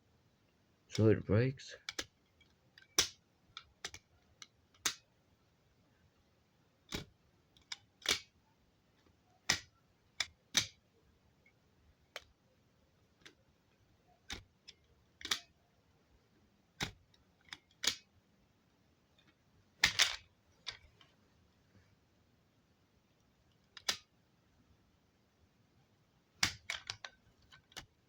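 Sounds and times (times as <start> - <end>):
plastic toy trucks clacking: 19.8 - 20.8.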